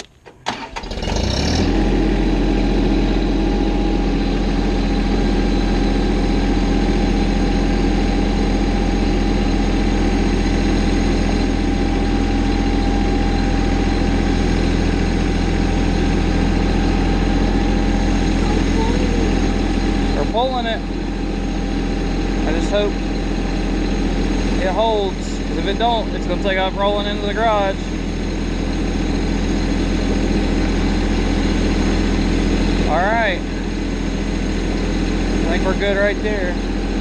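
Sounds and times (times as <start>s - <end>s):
tractor engine idling: 0.0s - 37.0s.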